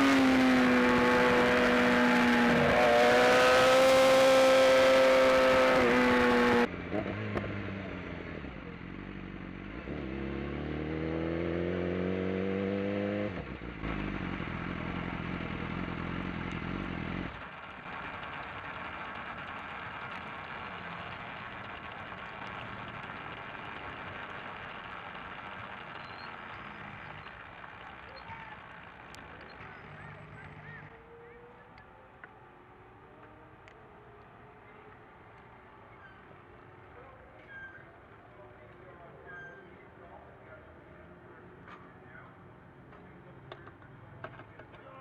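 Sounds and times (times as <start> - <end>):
motorcycle engine revving up: 0.0 - 35.2
racing motorcycle engine revving: 0.0 - 37.8.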